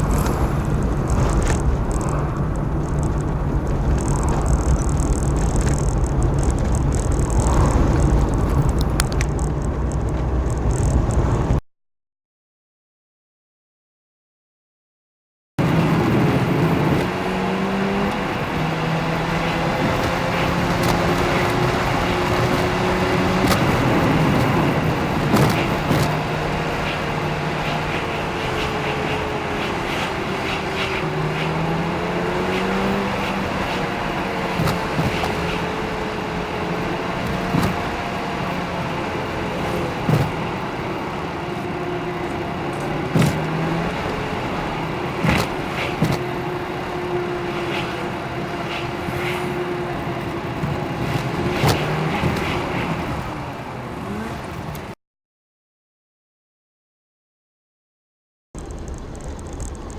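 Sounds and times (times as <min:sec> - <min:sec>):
motor running steadily: 0:00.0 - 0:09.3.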